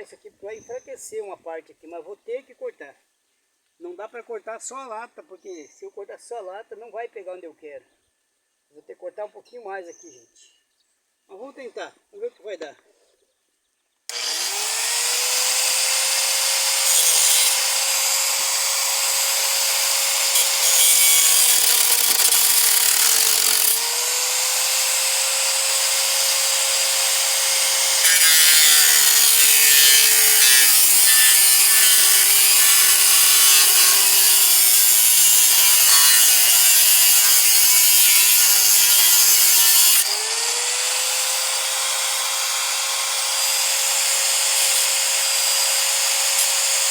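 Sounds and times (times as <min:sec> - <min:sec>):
angle grinder cutting sheet metal: 0:14.1 - 0:46.9.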